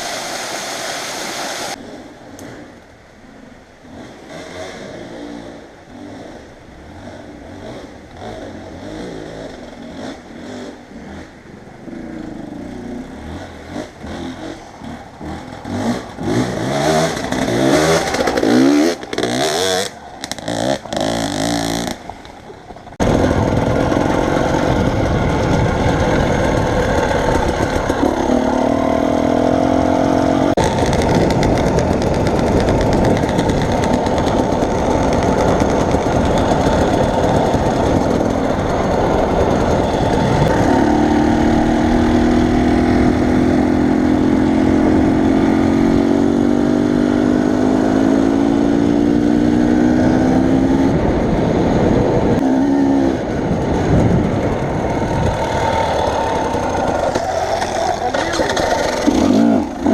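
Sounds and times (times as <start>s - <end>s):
road noise: 0.0s - 59.9s
vehicle engine: 1.6s - 59.9s
wind noise: 13.7s - 59.9s.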